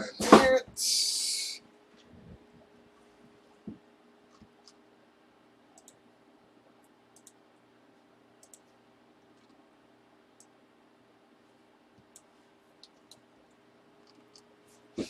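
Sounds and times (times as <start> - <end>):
faint steady hum: 0.0 - 15.0
small sharp clicks: 5.8 - 6.0, 6.8 - 7.4, 8.4 - 8.8.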